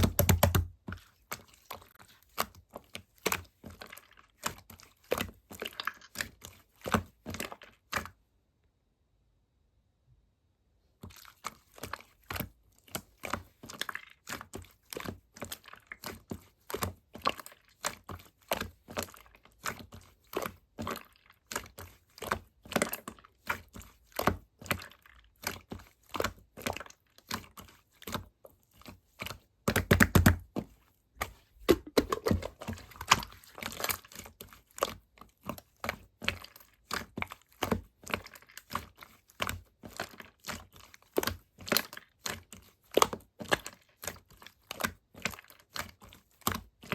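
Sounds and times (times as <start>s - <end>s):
clicks and taps of objects handled: 29.7s - 33.2s.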